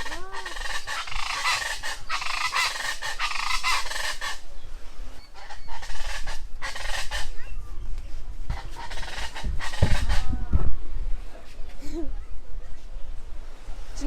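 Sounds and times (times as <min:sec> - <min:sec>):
bird calling: 0:00.0 - 0:07.7, 0:08.5 - 0:10.5.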